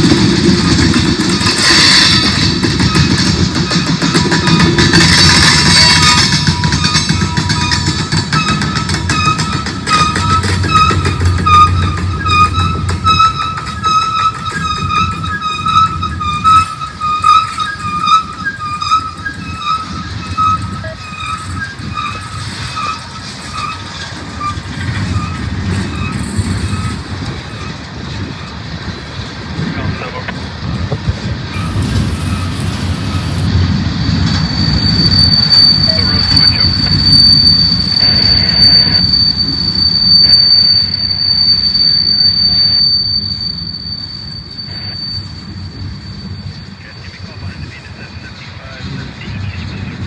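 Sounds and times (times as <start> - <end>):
freight train rumbling: 0.0 - 50.0
high-pitched squeal: 0.0 - 50.0.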